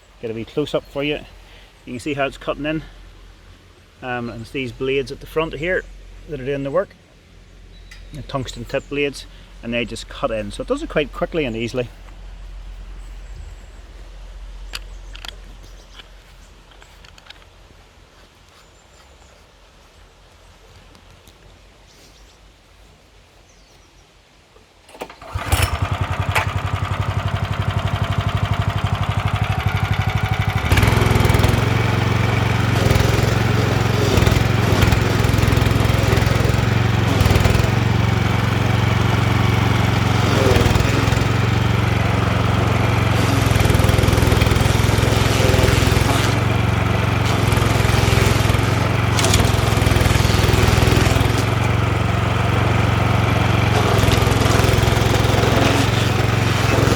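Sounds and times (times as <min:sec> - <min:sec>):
stump grinder engine: 0:24.9 - 0:56.9.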